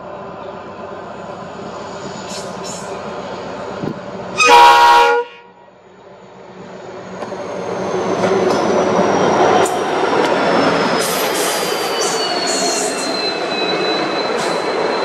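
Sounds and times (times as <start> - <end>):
train running rumble: 0.0 - 15.0
train horn blast: 4.4 - 5.6.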